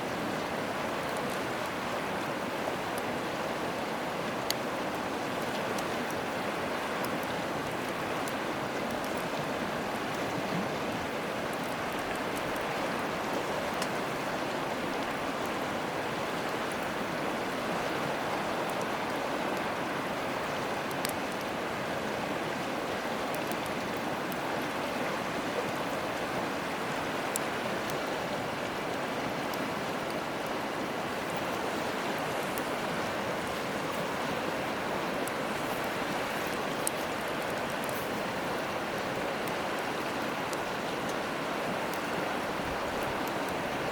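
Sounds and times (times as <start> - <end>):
stream flowing: 0.0 - 43.9
campfire crackles and pops: 0.1 - 43.9.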